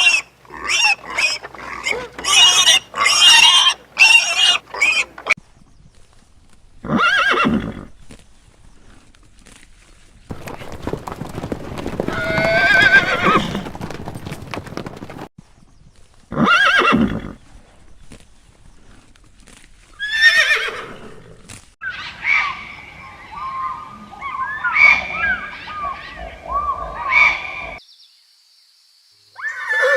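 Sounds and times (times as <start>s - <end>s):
hooves clicking: 0.0s - 5.4s, 8.0s - 15.3s
horse whinnying: 0.0s - 5.4s, 6.8s - 7.9s, 10.3s - 15.3s, 16.3s - 17.4s, 20.0s - 21.4s, 29.4s - 29.9s.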